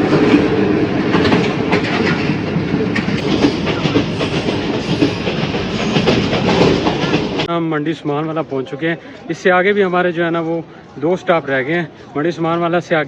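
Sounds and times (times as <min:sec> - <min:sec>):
wheels clacking over rails: 0:00.0 - 0:07.5
train carriage rumbling: 0:00.0 - 0:13.0.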